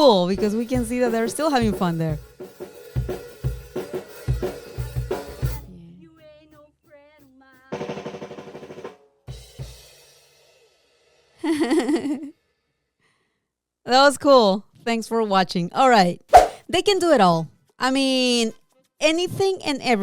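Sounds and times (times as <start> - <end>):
drum roll: 0.3 - 5.1.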